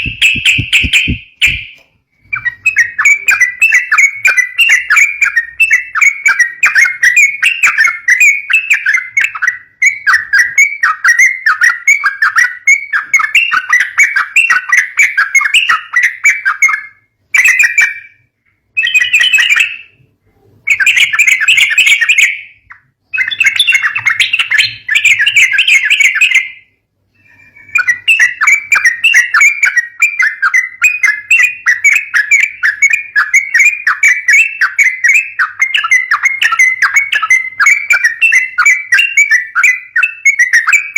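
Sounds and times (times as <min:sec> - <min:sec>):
bird chattering calls: 0:00.0 - 0:09.4.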